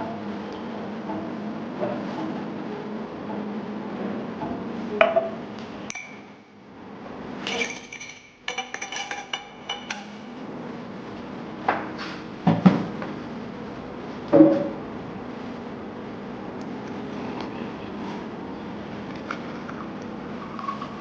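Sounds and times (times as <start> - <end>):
glass and dishware clinking: 7.5 - 10.2.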